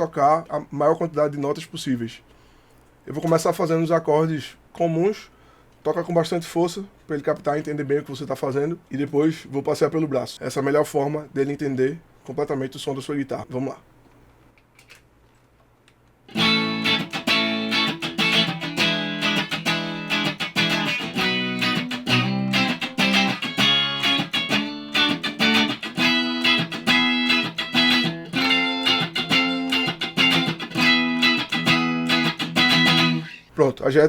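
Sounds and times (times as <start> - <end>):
faint amp hum: 0.0 - 34.0
electric guitar strumming chords: 16.3 - 33.4.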